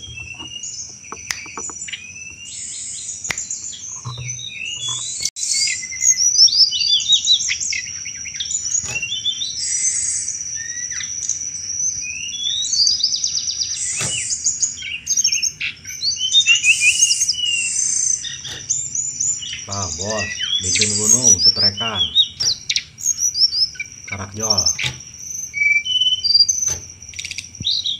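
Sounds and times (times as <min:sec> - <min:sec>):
bird chattering chirps and trills: 0:00.0 - 0:27.9
sharp clicks: 0:00.2 - 0:02.4.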